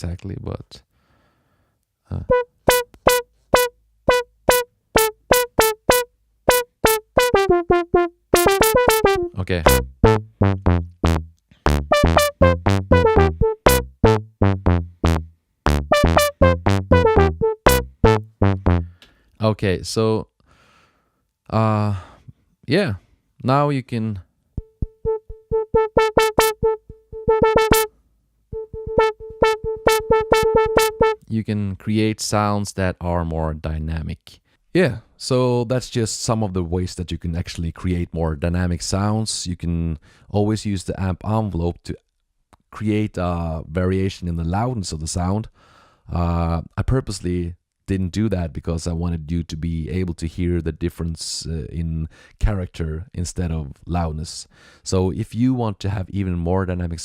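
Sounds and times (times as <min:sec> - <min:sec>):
pitched synth hits: 0:02.3 - 0:18.9, 0:24.6 - 0:27.9, 0:28.6 - 0:31.2.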